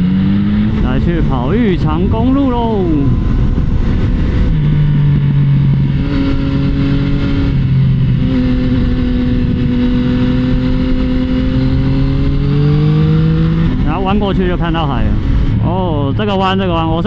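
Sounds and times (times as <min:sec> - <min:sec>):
motorcycle engine drone: 0:00.0 - 0:17.0
wind noise on microphone: 0:00.0 - 0:17.0.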